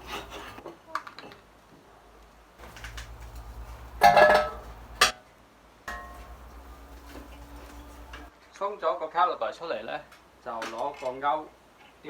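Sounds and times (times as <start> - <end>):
metal parts clattering: 0.0 - 0.6, 2.6 - 5.1.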